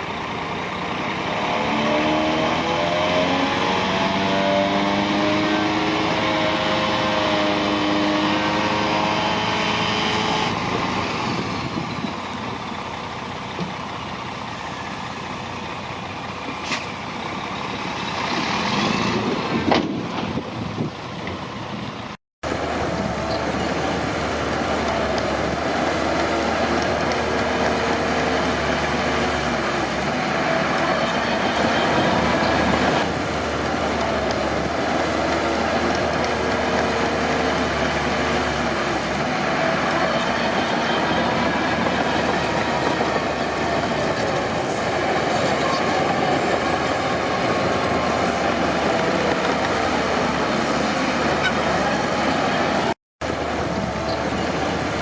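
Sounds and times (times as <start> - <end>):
bulldozer diesel engine: 0.0 - 55.0
steel tracks running: 22.7 - 55.0.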